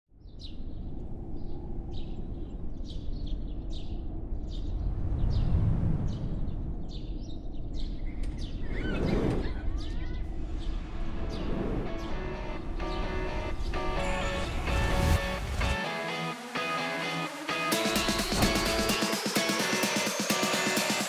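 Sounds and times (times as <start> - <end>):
birds chirping: 0.2 - 16.8
low rumble: 0.3 - 15.7
sweeping whoosh: 4.2 - 15.8.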